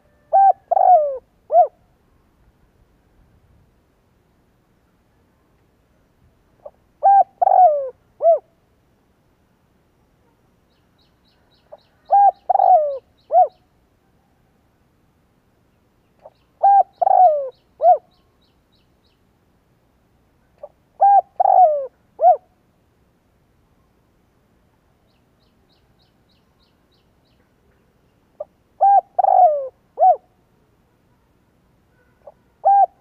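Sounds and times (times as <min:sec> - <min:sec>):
dove cooing: 0:00.0 - 0:01.8, 0:06.6 - 0:08.5, 0:12.0 - 0:13.6, 0:16.6 - 0:18.2, 0:20.6 - 0:22.5, 0:28.4 - 0:30.3, 0:32.2 - 0:33.0
small bird chirping: 0:16.0 - 0:19.2.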